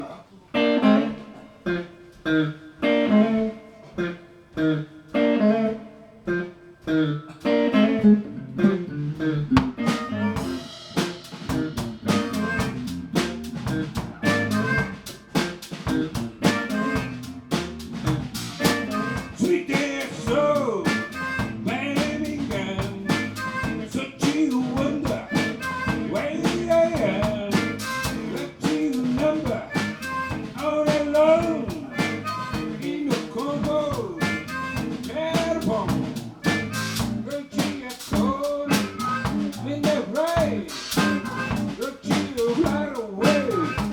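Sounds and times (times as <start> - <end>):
live band playing: 0.6 - 5.5, 6.3 - 43.9
guitar chords: 0.6 - 43.9
drum kit beat: 9.5 - 43.9.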